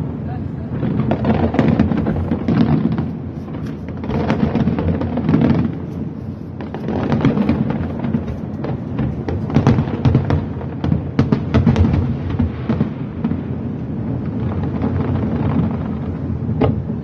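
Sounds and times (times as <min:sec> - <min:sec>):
continuous low rumble: 0:00.0 - 0:11.2
fireworks bangs and crackles: 0:00.0 - 0:17.0.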